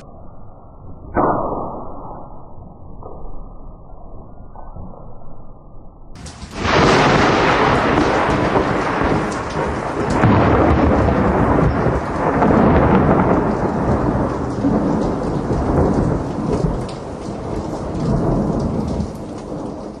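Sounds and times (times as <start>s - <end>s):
rain falling: 6.2s - 20.0s
thunder rumbling: 6.2s - 20.0s.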